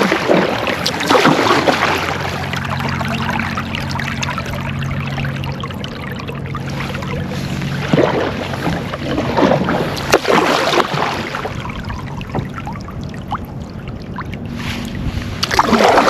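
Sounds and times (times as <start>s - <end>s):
low hum: 0.0s - 16.0s
water splashing around a kayak: 0.0s - 16.0s.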